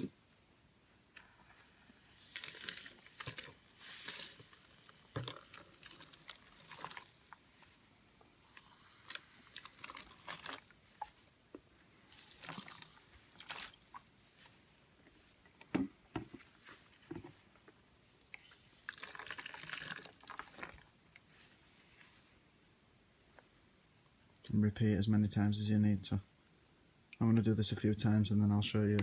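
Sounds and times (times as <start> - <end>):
water pouring and splashing: 2.1 - 7.8, 8.5 - 11.2, 12.1 - 14.1, 18.7 - 21.0.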